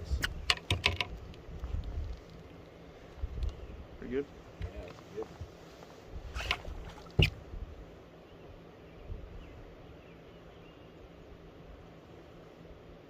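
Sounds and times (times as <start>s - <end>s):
small birds chirping: 3.4s - 5.4s, 8.1s - 11.3s.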